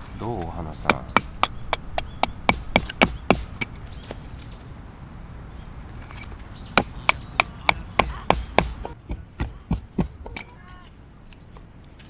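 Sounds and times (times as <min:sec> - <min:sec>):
wood being chopped: 0:00.0 - 0:09.0.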